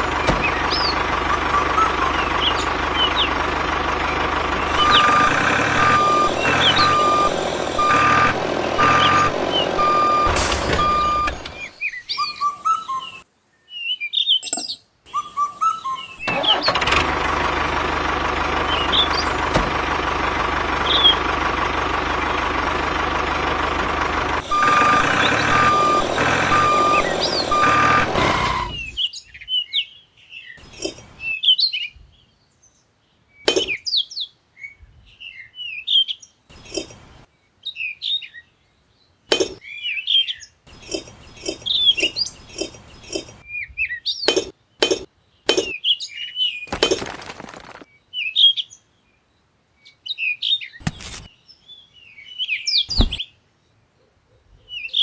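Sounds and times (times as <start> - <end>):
vehicle engine running: 0.0 - 11.9, 16.2 - 29.0, 30.6 - 31.3, 36.5 - 37.2, 40.7 - 43.4, 52.9 - 53.2
birds chirping: 0.0 - 29.6, 36.5 - 37.2, 39.3 - 43.5, 50.8 - 53.3
beeps: 4.7 - 11.8, 24.4 - 29.0.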